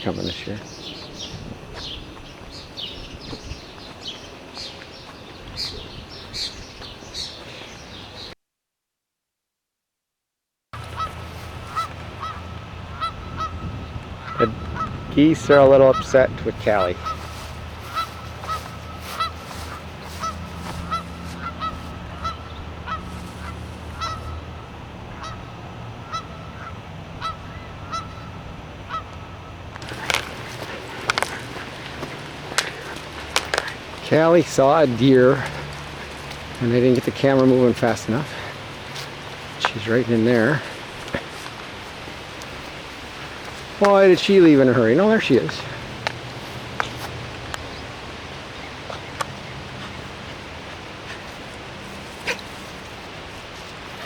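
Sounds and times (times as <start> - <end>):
small songbirds chirping: 0.0 - 8.4, 10.8 - 54.0
geese honking: 10.8 - 54.0.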